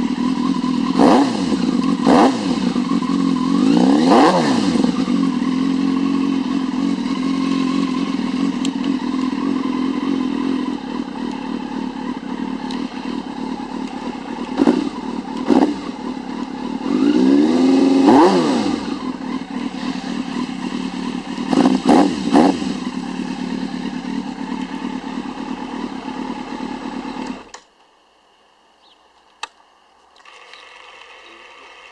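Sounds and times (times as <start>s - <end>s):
motorcycle engine idling and revving: 0.0s - 28.9s
single click: 29.2s - 29.6s.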